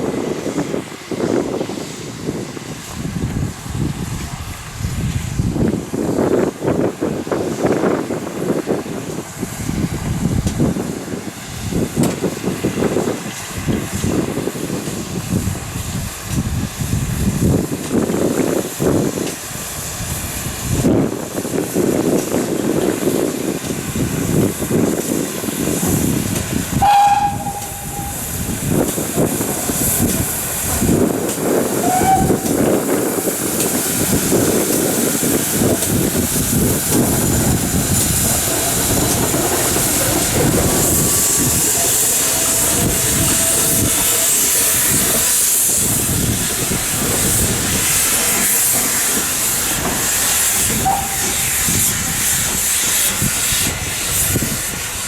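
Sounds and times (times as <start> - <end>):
steam hissing: 0.0 - 55.0
steam locomotive exhaust beats: 0.0 - 55.0
faint short whistle notes: 26.8 - 28.2.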